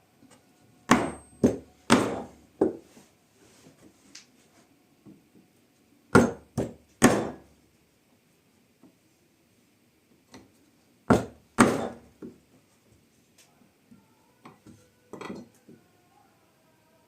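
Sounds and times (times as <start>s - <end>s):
sharp wooden knocks: 6.2s - 7.4s, 11.1s - 12.1s.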